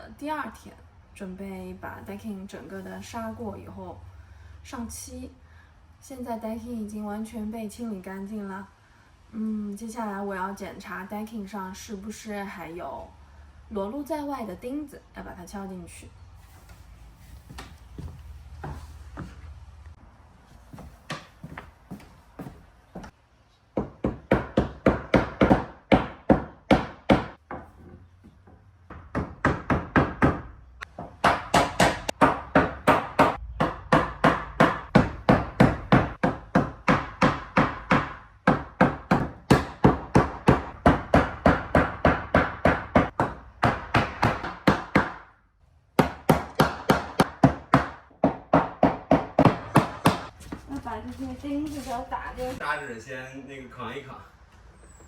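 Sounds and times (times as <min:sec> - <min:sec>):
hammer knocking nails into wood: 0:23.8 - 0:27.7, 0:28.9 - 0:45.3, 0:46.0 - 0:50.4.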